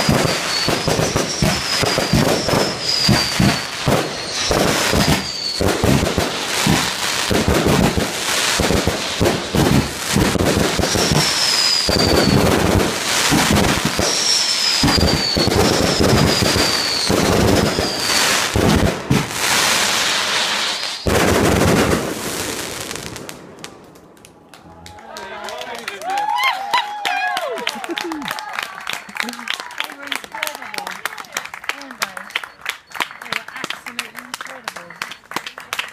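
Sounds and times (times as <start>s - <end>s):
fireworks falling whistles: 0.0s - 23.7s
fireworks bangs and crackling: 0.0s - 24.4s.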